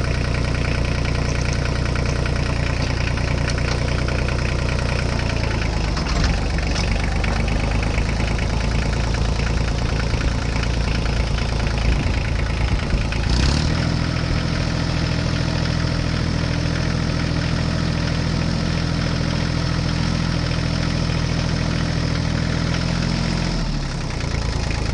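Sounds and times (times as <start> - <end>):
vehicle engine idling: 0.0 - 24.9.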